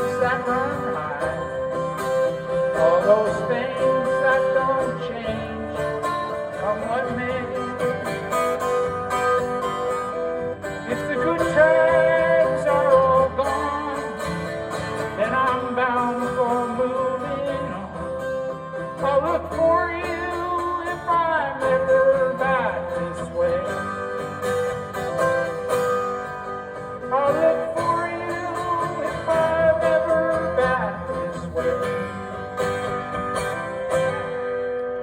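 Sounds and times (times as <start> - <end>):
strummed acoustic guitar: 0.0 - 35.0.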